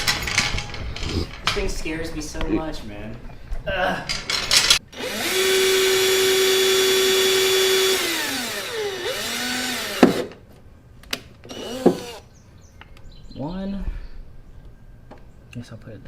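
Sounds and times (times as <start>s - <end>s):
power drill drilling into plastic: 5.0s - 10.3s, 11.5s - 12.2s.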